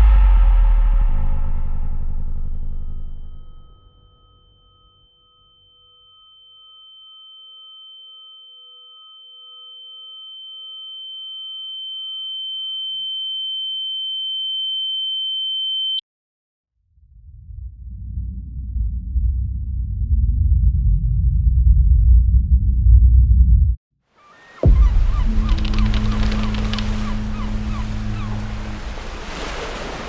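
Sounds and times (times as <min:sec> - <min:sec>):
deep rumble: 0:00.0 - 0:04.0, 0:17.0 - 0:23.8, 0:24.6 - 0:29.3
pulsing lower tones: 0:00.0 - 0:04.6, 0:24.4 - 0:29.3
high-pitched ringing tone: 0:01.8 - 0:16.0.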